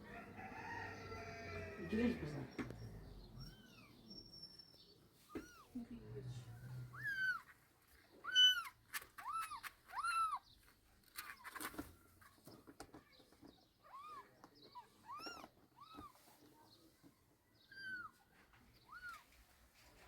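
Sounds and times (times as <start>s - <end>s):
cat meowing: 6.9s - 7.5s, 8.2s - 10.4s.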